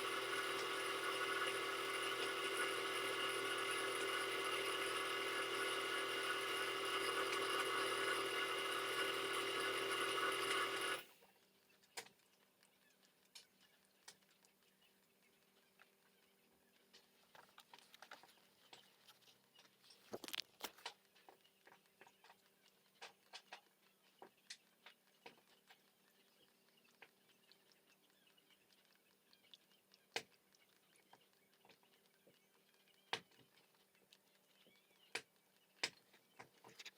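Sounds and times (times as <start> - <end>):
machine whirring: 0.0 - 11.1.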